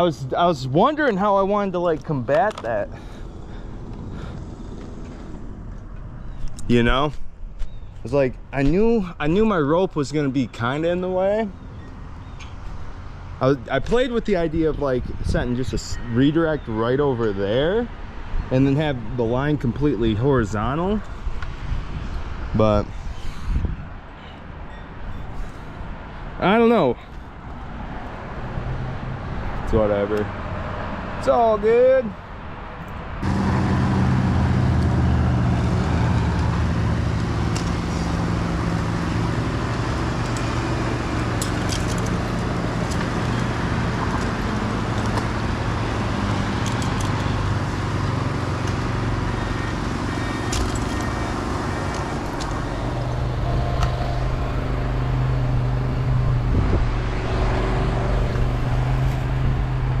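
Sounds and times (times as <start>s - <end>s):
engine running steadily: 33.2s - 60.0s.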